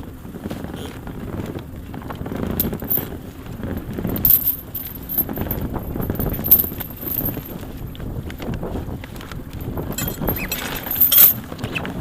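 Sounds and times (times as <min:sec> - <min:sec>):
steady low rumble: 0:00.0 - 0:12.0
metal clinking and rattling: 0:02.6 - 0:07.6, 0:09.5 - 0:11.4.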